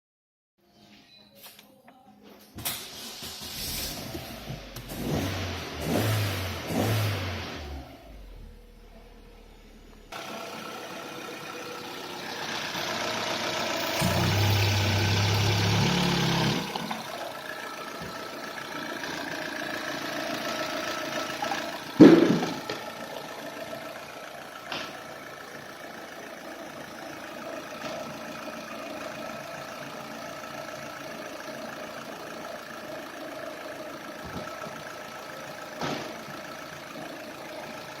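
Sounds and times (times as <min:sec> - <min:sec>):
car engine idling: 0:03.1 - 0:38.0
loud thump: 0:22.0 - 0:22.6.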